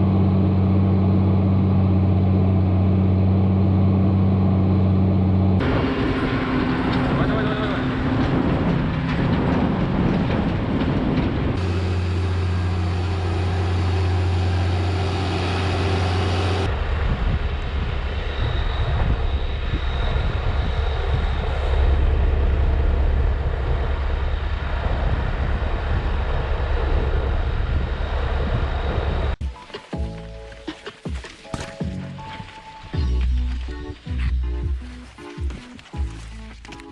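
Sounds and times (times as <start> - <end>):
steady engine drone: 0.0 - 29.4
steady low rumble: 0.0 - 29.4.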